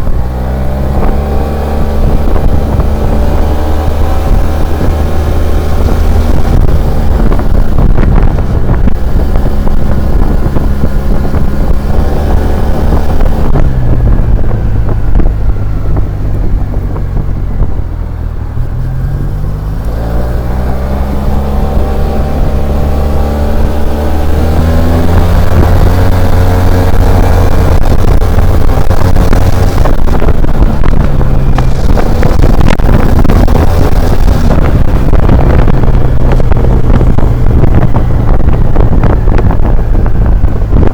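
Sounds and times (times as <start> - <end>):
scooter engine running: 0.0 - 40.9
wind on microphone: 0.0 - 40.9.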